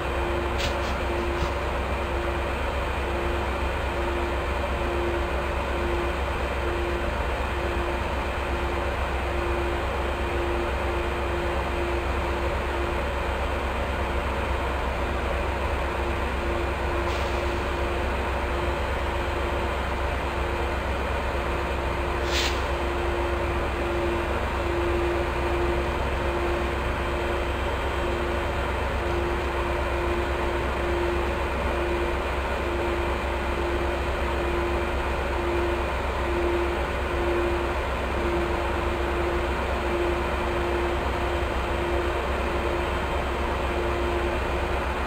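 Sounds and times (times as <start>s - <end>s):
diesel train engine idling: 0.0s - 45.0s
humming tone: 23.1s - 42.8s.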